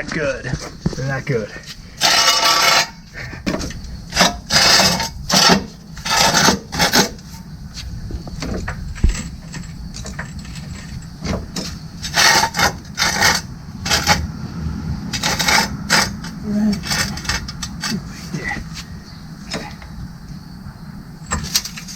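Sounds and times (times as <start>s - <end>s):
floor jack scraping strokes: 1.6s - 8.0s, 9.0s - 18.9s.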